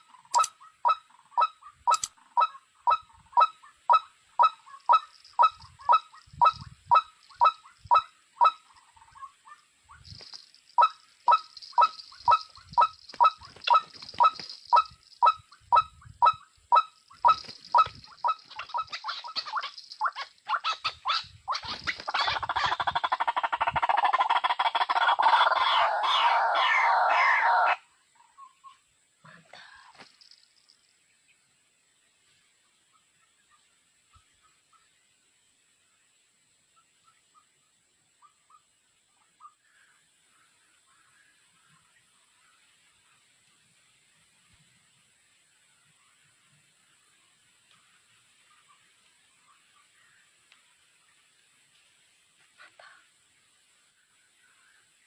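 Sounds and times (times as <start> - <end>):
dense bird chatter: 0.0 - 28.7, 39.3 - 43.4
repeated bird calls: 0.0 - 28.9.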